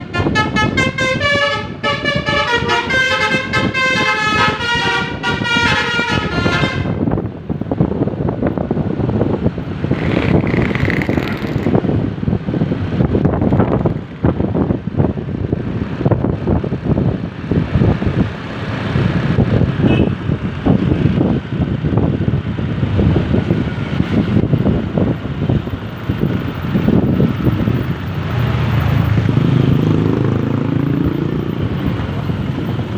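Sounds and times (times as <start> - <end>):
musical air horn melody: 0.0 - 7.0
vehicle engine and road noise: 0.0 - 32.9.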